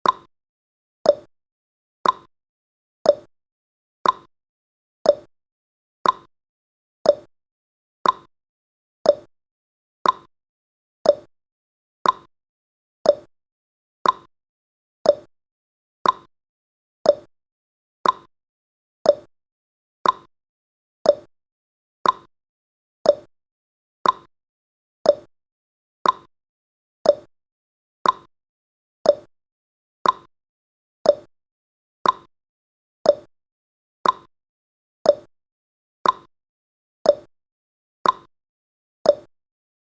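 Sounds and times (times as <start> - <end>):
timer ticking: 0.0 - 0.3, 1.1 - 1.3, 2.0 - 2.3, 3.1 - 3.3, 4.0 - 4.3, 5.1 - 5.3, 6.0 - 6.3, 7.0 - 7.3, 8.0 - 8.3, 9.0 - 9.3, 10.0 - 10.3, 11.0 - 11.3, 12.0 - 12.3, 13.0 - 13.3, 14.0 - 14.3, 15.0 - 15.3, 16.0 - 16.3, 17.0 - 17.3, 18.0 - 18.3, 19.0 - 19.3, 20.0 - 20.3, 21.0 - 21.3, 22.0 - 22.3, 23.0 - 23.3, 24.0 - 24.3, 25.0 - 25.3, 26.0 - 26.3, 27.0 - 27.3, 28.0 - 28.3, 29.0 - 29.3, 30.0 - 30.3, 31.0 - 31.3, 32.0 - 32.3, 33.0 - 33.3, 34.0 - 34.3, 35.1 - 35.3, 36.0 - 36.3, 37.1 - 37.3, 38.0 - 38.3, 39.1 - 39.3.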